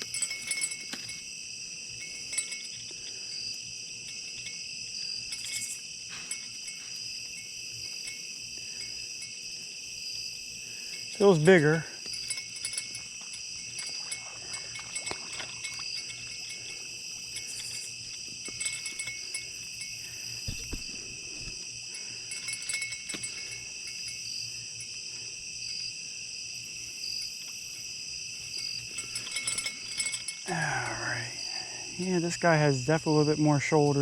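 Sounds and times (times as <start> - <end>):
night insects chirping: 0.0 - 34.0
soft low thump: 20.5 - 21.6.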